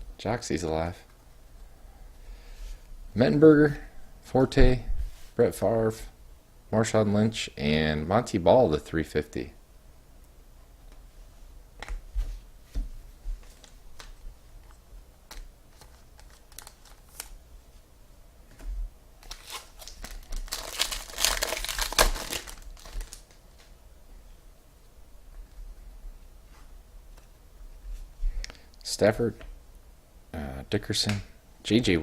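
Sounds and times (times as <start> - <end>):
card pack wrapper crinkling and tearing: 15.3 - 17.4, 19.2 - 23.4.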